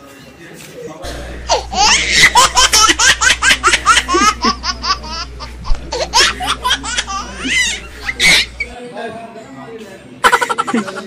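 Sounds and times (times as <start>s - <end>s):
person laughing hard: 1.1s - 8.5s.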